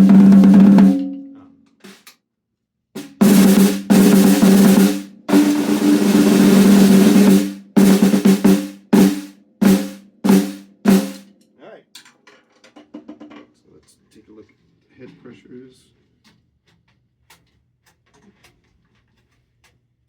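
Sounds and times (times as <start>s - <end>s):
snare drum rolls and strokes: 0.0s - 1.2s, 3.0s - 11.3s.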